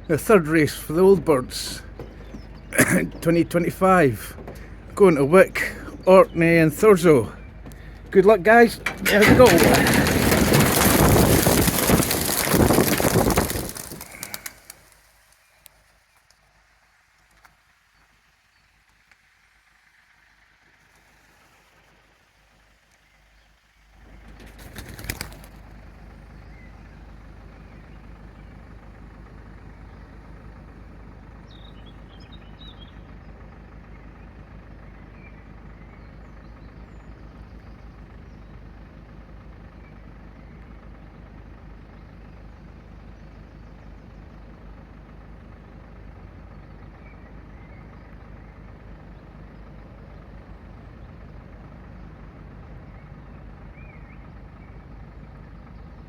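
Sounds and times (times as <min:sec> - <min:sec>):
vehicle engine rumble: 0:00.0 - 0:56.0
loud clatter: 0:01.8 - 0:15.0
faint bird chirps: 0:31.4 - 0:33.1.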